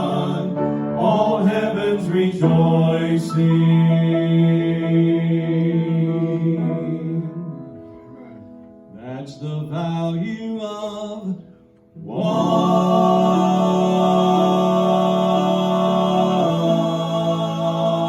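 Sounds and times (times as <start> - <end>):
gospel song: 0.0 - 18.0.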